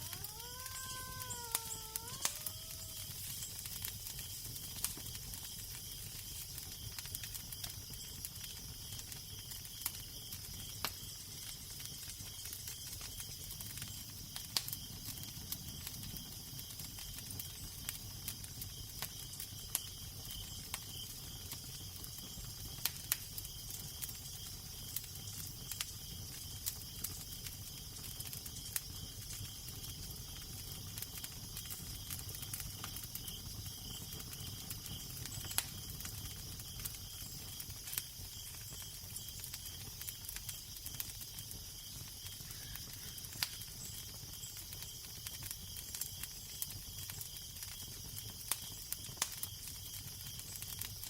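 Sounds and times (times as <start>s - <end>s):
fire crackling and popping: 0.0s - 51.0s.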